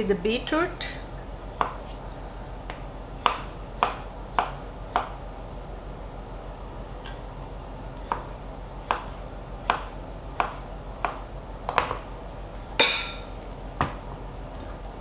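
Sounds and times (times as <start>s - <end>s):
knife chopping on cutting board: 1.6s - 2.0s, 2.7s - 5.2s, 8.0s - 12.0s.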